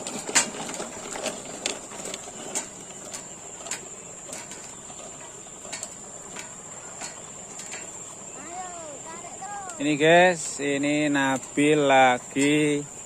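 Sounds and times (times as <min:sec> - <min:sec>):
sharp clicks and knocks: 0:00.0 - 0:08.0.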